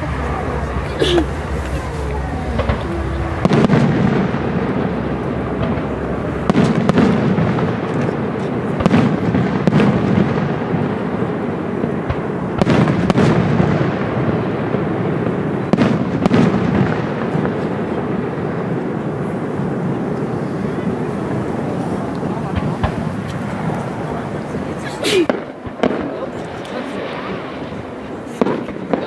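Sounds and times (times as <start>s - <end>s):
steady rumbling noise: 0.0s - 29.0s.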